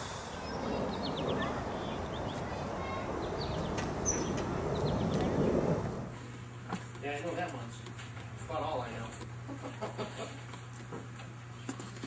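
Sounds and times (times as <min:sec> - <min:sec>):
low outdoor background noise: 0:00.0 - 0:12.0
small birds chirping: 0:00.3 - 0:05.6.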